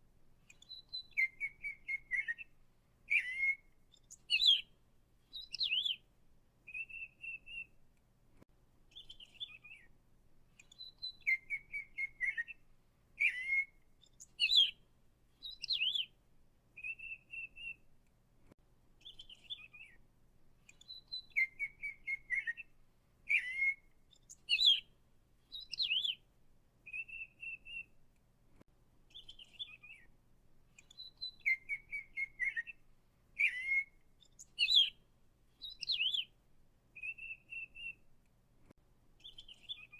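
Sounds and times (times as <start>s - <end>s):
songbird singing: 0.0s - 8.0s, 8.8s - 17.9s, 19.0s - 28.1s, 29.0s - 38.1s, 39.2s - 39.9s.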